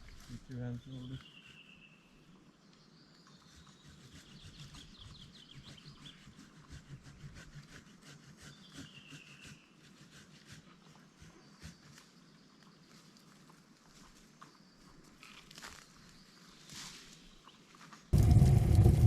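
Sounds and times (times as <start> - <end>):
birds singing: 0.1 - 7.1, 8.4 - 9.8, 10.8 - 13.3
brush crackling and rustling: 11.9 - 18.7.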